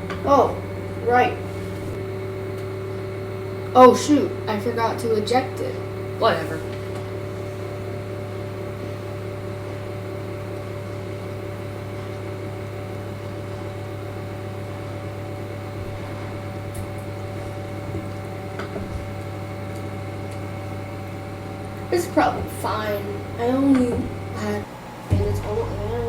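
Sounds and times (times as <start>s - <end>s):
printer fans humming: 0.0s - 26.0s.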